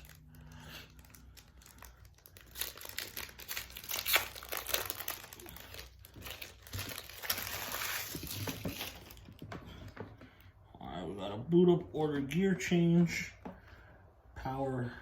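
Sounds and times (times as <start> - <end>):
foil pack tearing and crinkling: 0.0 - 9.2.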